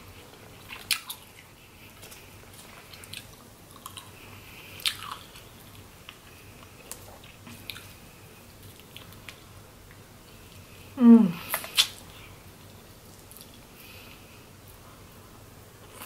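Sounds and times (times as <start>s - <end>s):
wet mouth clicks and smacks: 11.5s - 12.0s.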